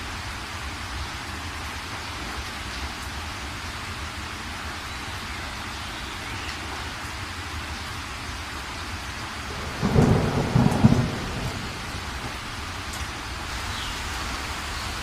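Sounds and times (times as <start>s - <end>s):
heavy rain: 0.0s - 15.0s
thunder clap and rumble: 9.5s - 13.2s.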